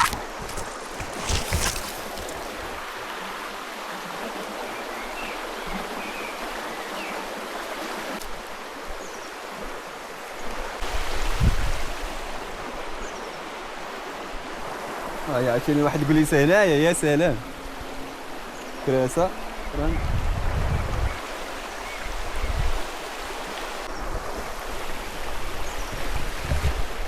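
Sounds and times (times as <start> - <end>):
river water rushing over rocks: 0.0 - 3.0.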